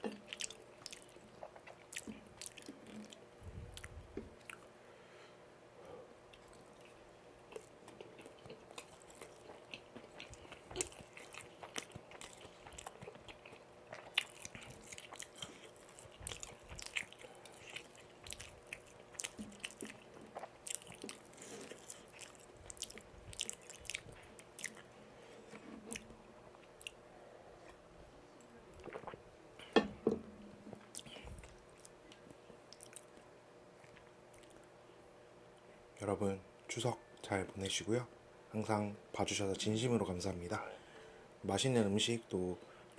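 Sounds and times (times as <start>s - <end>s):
person chewing food: 0.0s - 4.7s, 6.3s - 27.0s, 28.7s - 29.8s, 30.7s - 33.2s, 33.8s - 34.7s.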